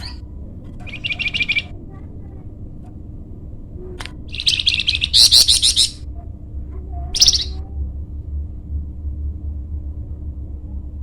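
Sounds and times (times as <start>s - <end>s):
low steady hum: 0.0s - 11.0s
songbird trilling: 0.8s - 1.8s, 4.3s - 6.0s, 7.1s - 7.6s.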